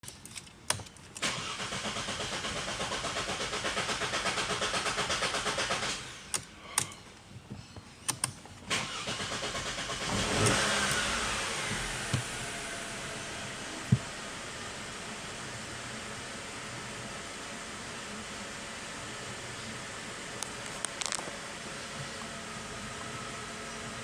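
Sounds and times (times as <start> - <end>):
starter motor cranking: 1.2 - 6.3, 8.7 - 14.1
car engine firing and idling: 1.2 - 6.4, 8.6 - 24.0.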